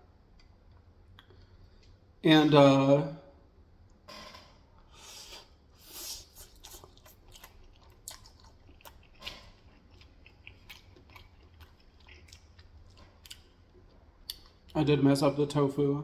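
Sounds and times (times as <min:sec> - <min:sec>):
chewing crunchy fried chicken: 0:05.0 - 0:14.9
wet mouth clicks: 0:05.2 - 0:12.6.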